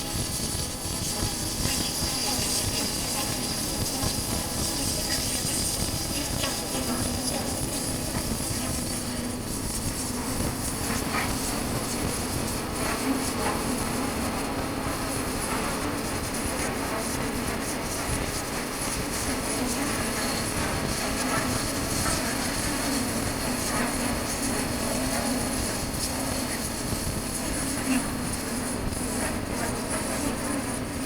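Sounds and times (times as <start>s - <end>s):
wind noise on microphone: 0.0s - 31.0s.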